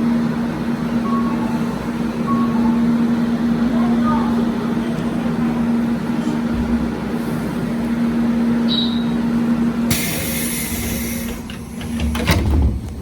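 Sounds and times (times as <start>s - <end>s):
electric train hum: 0.0s - 13.0s
train rumbling away: 0.0s - 13.0s
air brake hiss: 9.9s - 11.5s.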